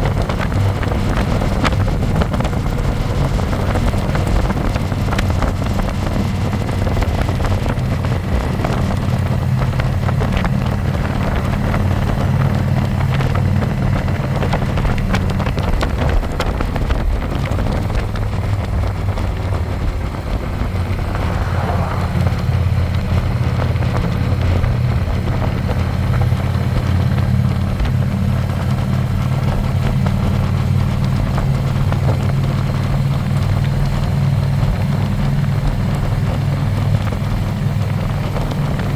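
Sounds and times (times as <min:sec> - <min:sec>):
motorcycle engine running: 0:00.0 - 0:38.9
wind on microphone: 0:00.0 - 0:38.9.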